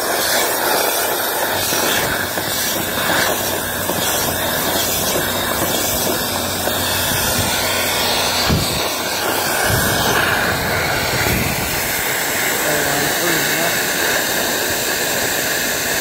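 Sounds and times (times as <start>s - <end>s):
air rushing through vent duct: 0.0s - 16.0s
low bump: 5.1s - 11.9s.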